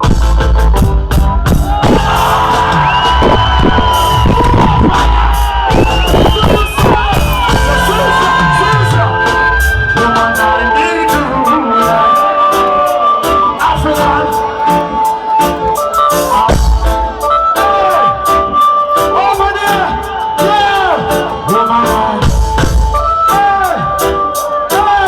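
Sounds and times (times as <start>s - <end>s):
bass slide: 0.0s - 11.5s
live reggae band: 0.0s - 25.0s.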